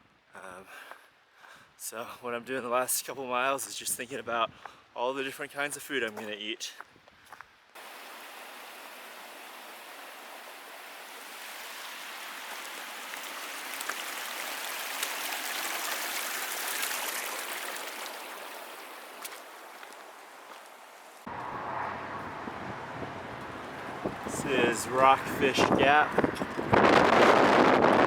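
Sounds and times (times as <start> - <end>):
mountain stream rushing: 7.8 - 28.0.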